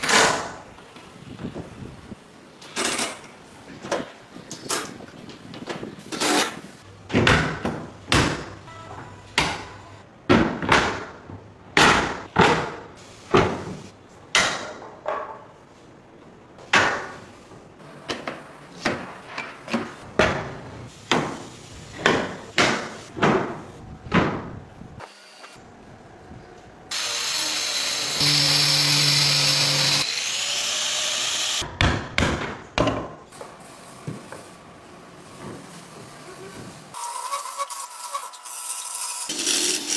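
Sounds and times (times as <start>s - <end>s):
power tool running: 26.9s - 31.6s.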